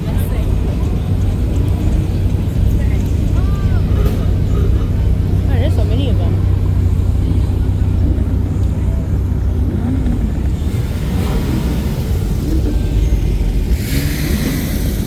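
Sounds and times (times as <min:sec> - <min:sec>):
car engines rumbling: 0:00.0 - 0:15.0
rushing hiss: 0:10.7 - 0:15.0.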